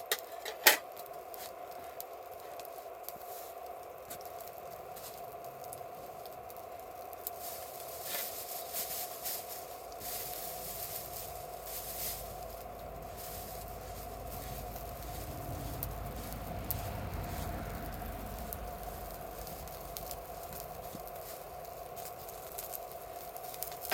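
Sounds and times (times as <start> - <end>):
campfire crackling and popping: 0.0 - 23.9
rustling bursts: 7.3 - 23.9
low rumble: 10.0 - 23.9.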